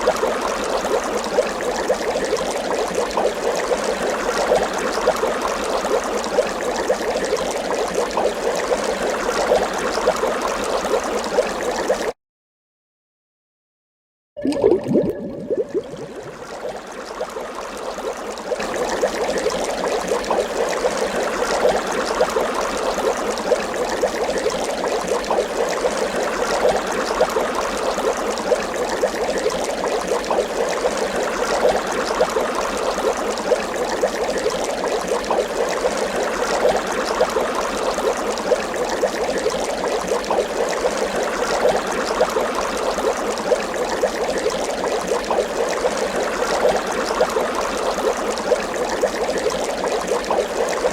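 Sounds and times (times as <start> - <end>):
water bubbling: 14.4 - 17.3.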